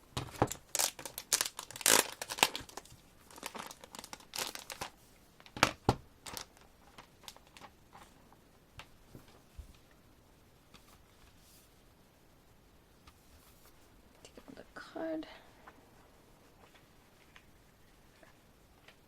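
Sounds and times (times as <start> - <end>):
packaging crinkling and rustling: 0.2 - 8.2.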